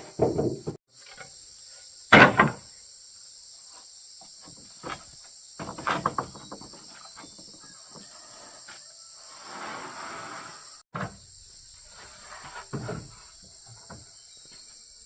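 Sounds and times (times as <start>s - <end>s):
knocks and rattles: 0.0s - 0.8s, 2.1s - 2.6s, 5.6s - 7.6s
insects chirring: 0.0s - 15.0s.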